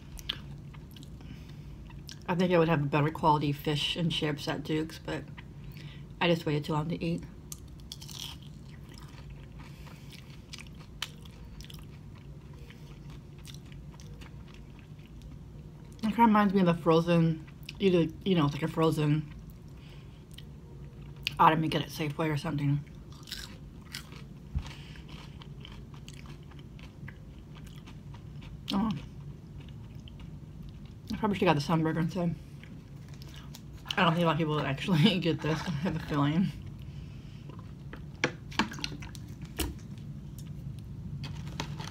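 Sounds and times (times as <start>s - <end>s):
low hum: 0.0s - 41.9s
close-miked chewing: 7.5s - 16.0s, 22.8s - 31.2s.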